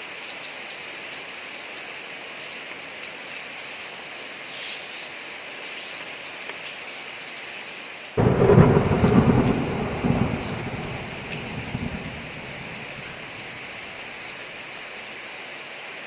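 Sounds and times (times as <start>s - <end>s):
rain falling on street: 0.0s - 16.0s
thunder clap and rumble: 8.2s - 14.2s.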